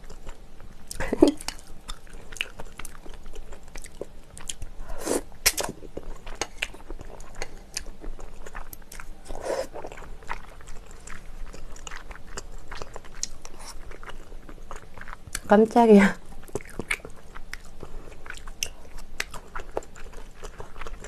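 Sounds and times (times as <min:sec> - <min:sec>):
chewing and crunching: 0:00.0 - 0:04.8, 0:05.4 - 0:15.6, 0:16.2 - 0:21.0
loud mouth smacks: 0:05.4 - 0:05.7.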